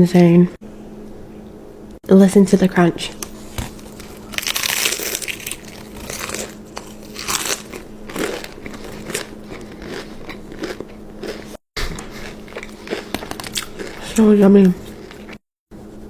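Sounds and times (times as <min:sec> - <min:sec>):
crunchy chewing: 0:03.2 - 0:15.4.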